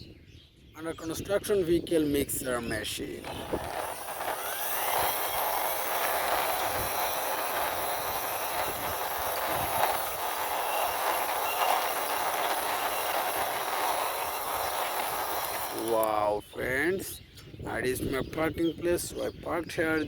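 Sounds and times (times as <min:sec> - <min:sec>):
toy truck wheels rolling: 0:03.2 - 0:16.2.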